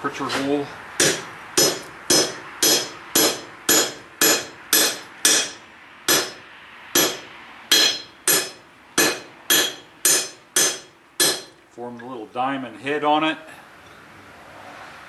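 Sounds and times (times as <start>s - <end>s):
hammer striking metal: 1.0s - 6.4s, 7.0s - 11.6s.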